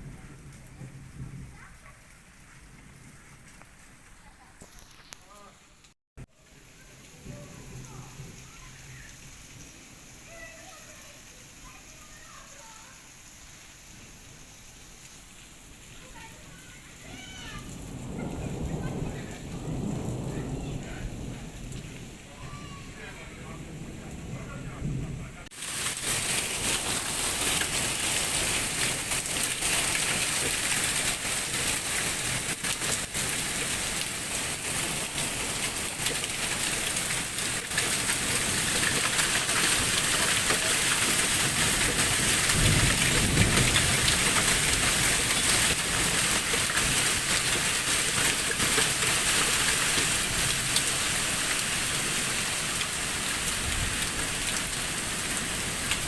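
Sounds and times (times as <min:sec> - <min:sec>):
thunder rumble: 0:00.0 - 0:03.4, 0:17.1 - 0:56.0
heavy rain pouring: 0:00.0 - 0:56.0.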